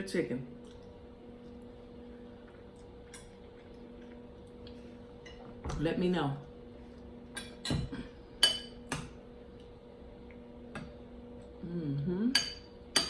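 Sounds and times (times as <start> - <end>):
person humming: 11.6 - 12.4.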